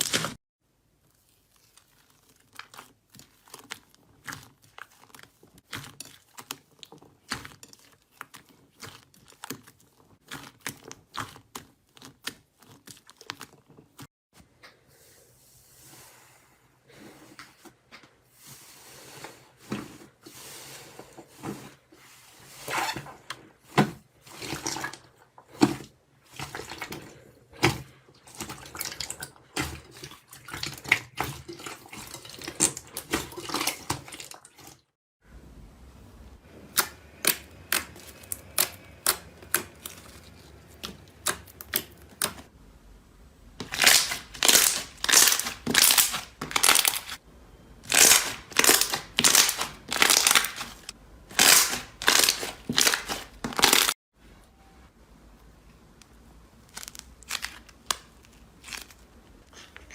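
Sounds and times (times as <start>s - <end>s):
slime squishing with sticky clicks: 36.7s - 42.5s.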